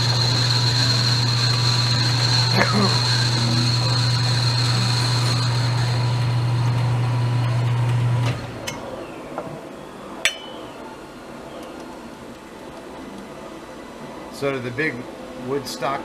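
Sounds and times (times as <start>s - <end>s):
metal lathe humming and whining: 0.0s - 8.6s.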